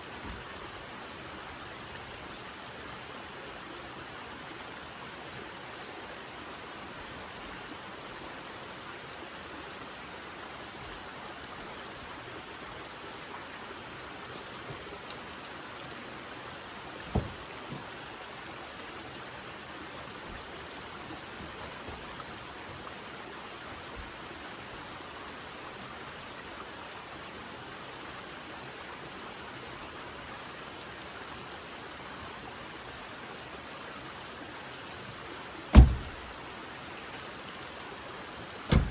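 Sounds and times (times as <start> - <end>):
stream water rushing: 0.0 - 38.9
sharp knock: 35.8 - 36.2.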